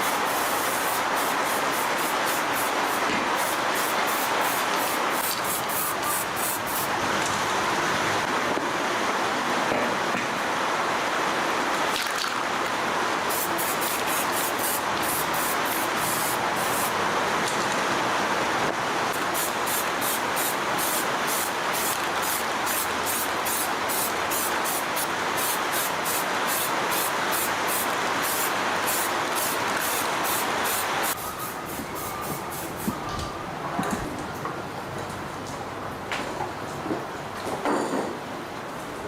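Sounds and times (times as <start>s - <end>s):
steady spray hiss: 0.0s - 7.8s, 13.0s - 17.1s, 19.1s - 33.0s.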